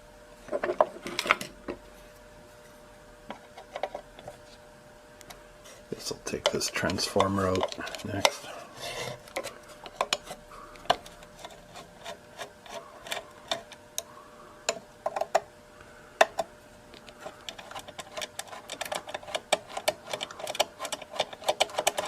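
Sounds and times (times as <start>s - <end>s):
tool clicking and scraping on metal: 6.0s - 14.1s, 17.2s - 22.0s.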